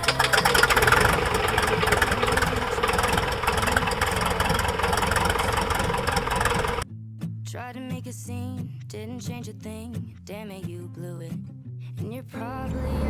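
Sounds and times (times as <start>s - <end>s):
light aircraft engine and propeller: 0.0s - 6.8s.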